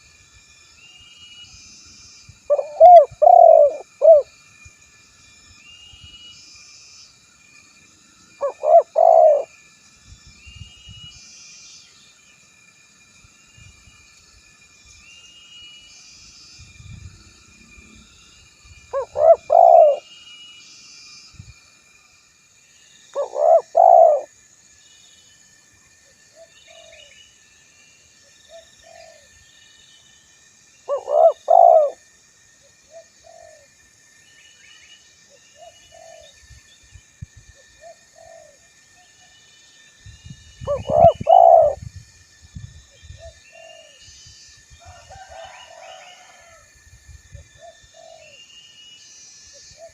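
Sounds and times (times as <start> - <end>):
faint high chirping: 0.0 - 21.6, 22.6 - 46.6
dove cooing: 2.5 - 4.3, 8.4 - 9.5, 18.9 - 20.0, 23.2 - 24.3, 28.5 - 29.3, 30.9 - 32.0, 32.9 - 33.7, 35.6 - 36.3, 37.8 - 38.6, 40.7 - 41.8, 43.2 - 44.0, 47.6 - 48.4.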